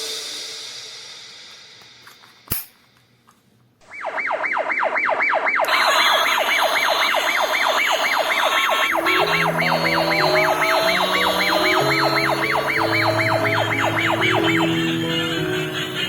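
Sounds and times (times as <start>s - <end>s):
toy car electronic siren wail: 4.0s - 14.8s.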